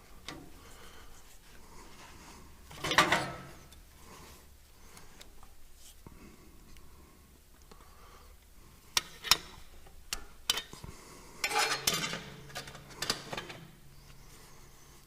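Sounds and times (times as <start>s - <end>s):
metal tools clinking and tapping: 11.4s - 13.6s.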